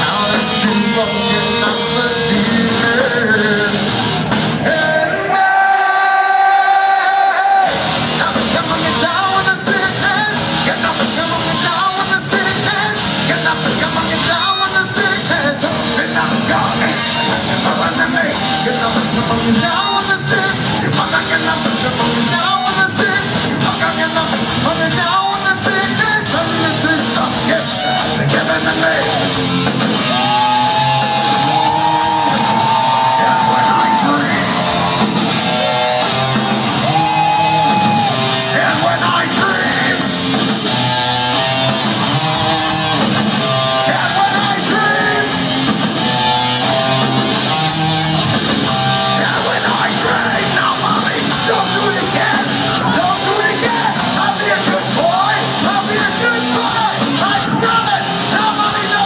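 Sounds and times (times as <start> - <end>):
bass: 0.0 - 5.1, 7.6 - 59.0
distorted electric guitars: 0.0 - 5.6, 6.4 - 59.0
drums: 0.0 - 59.0
person yelling vocals: 49.2 - 59.0.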